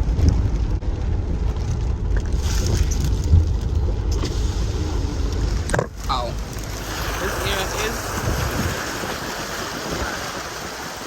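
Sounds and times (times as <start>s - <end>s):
car driving: 0.0s - 11.0s
tyres hissing through water: 6.6s - 11.0s.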